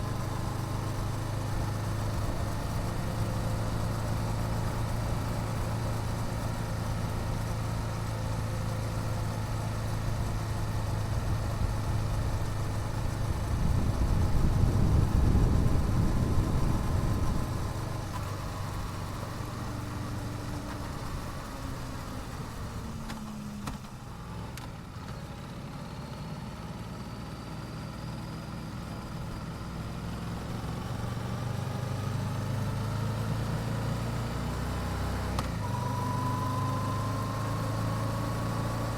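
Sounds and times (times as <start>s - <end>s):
motorcycle engine: 0.0s - 27.0s.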